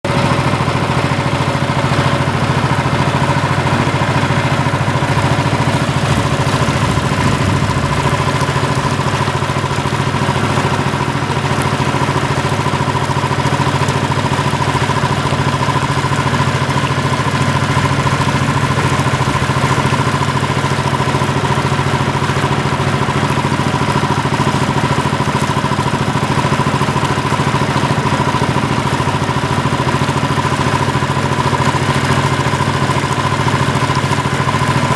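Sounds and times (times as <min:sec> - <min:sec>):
mechanical hum: 0:02.4 - 0:11.5.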